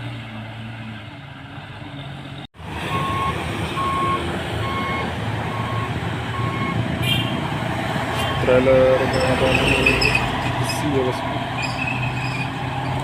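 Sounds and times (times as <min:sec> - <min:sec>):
truck engine and road rumble: 0:00.0 - 0:13.0
truck reversing beeper: 0:02.8 - 0:07.3.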